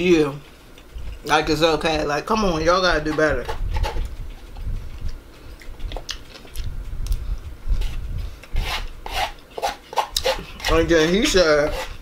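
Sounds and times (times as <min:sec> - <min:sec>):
person chewing: 0:03.6 - 0:10.8
wet mouth clicks: 0:04.1 - 0:07.2.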